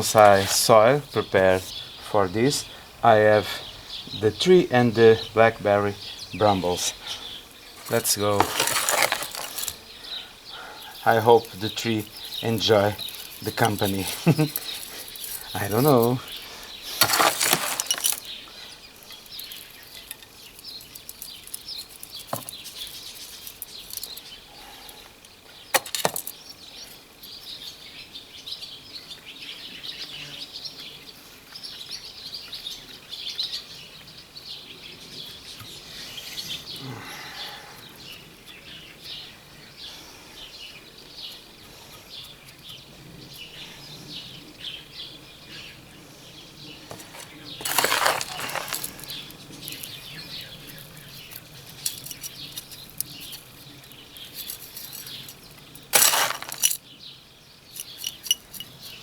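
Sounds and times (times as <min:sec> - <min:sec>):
gritty soil clicks and rustles: 0:00.0 - 0:27.8, 0:46.6 - 0:59.0.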